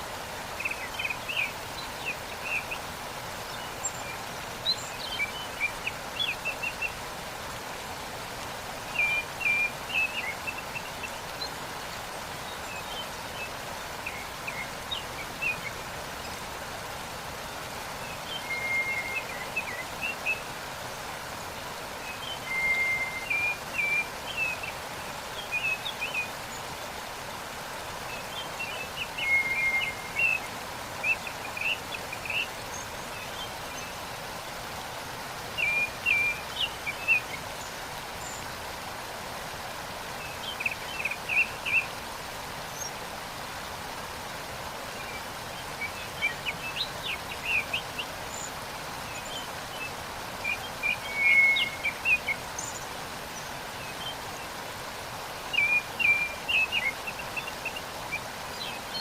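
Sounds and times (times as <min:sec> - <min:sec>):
waterfall rushing: 0:00.0 - 0:59.0
songbird chirping: 0:44.9 - 0:59.0.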